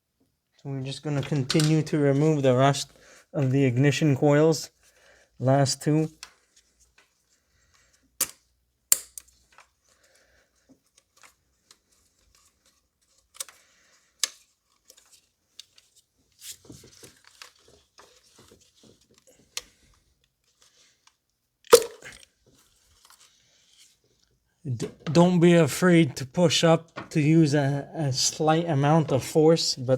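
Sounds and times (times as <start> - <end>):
plastic connector clicks and snaps: 8.2 - 9.3
crackly rustling: 9.3 - 21.2.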